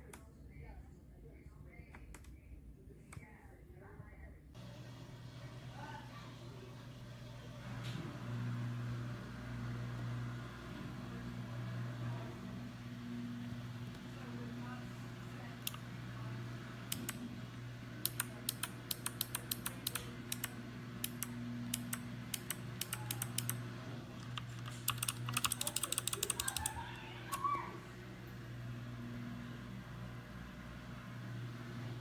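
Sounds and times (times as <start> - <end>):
low electrical hum: 0.0 - 32.0
mechanical keyboard typing: 15.5 - 15.8, 16.9 - 17.3, 18.0 - 23.6, 24.2 - 27.4.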